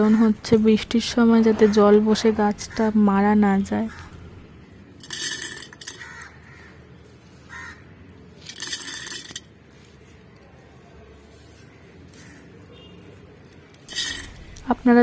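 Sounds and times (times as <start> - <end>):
stone chips poured into pot: 13.8 - 14.6.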